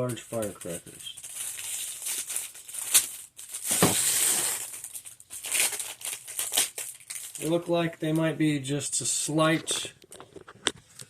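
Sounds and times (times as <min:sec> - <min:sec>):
wrapping rustling and crinkling: 0:00.0 - 0:08.3.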